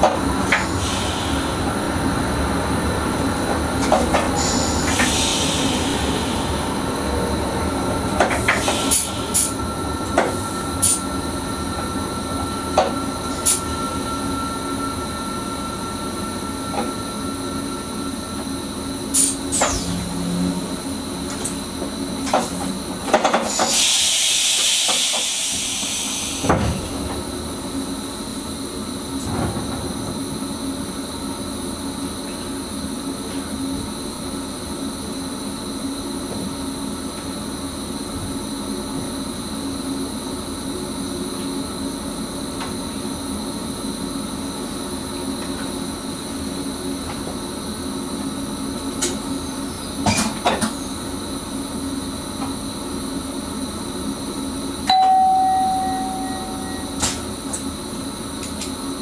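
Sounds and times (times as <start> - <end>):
equipment hum: 0.0 - 59.0
loud air hiss: 0.6 - 2.0, 4.3 - 7.7, 8.4 - 9.6, 23.4 - 27.0.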